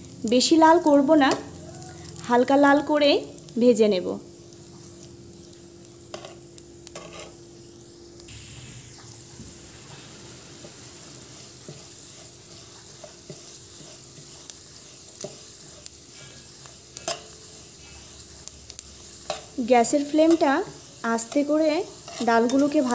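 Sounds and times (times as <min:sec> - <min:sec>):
lentils sizzling in oil: 0:00.0 - 0:22.9
metal spatula scraping a pan: 0:07.0 - 0:07.4, 0:10.6 - 0:20.5, 0:21.2 - 0:22.9.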